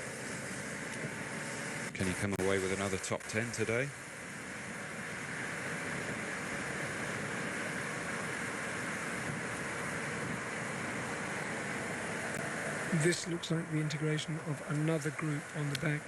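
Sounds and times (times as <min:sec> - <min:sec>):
rushing wind: 0:00.0 - 0:16.0.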